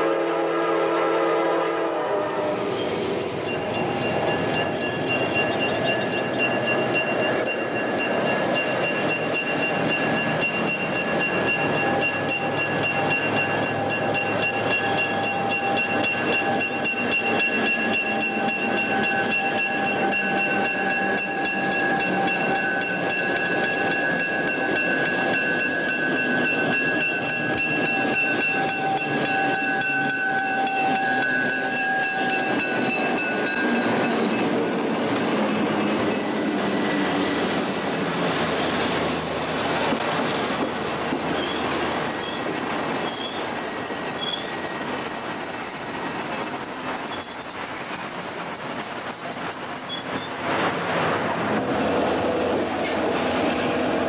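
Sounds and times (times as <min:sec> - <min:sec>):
train rumble: 0:00.0 - 0:54.0
thin high squeal: 0:02.8 - 0:34.4, 0:36.7 - 0:51.2
steady high-pitched tone: 0:03.3 - 0:39.5.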